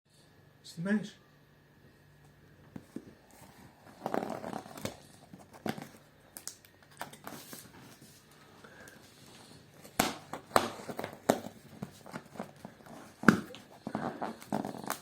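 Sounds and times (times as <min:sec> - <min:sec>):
packaging crinkling and tearing: 0:03.2 - 0:15.0.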